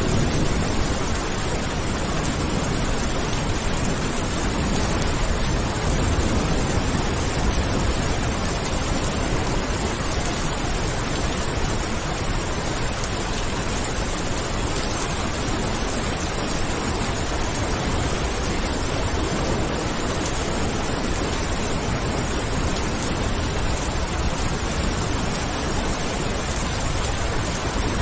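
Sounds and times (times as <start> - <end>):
heavy rain: 0.0 - 28.0.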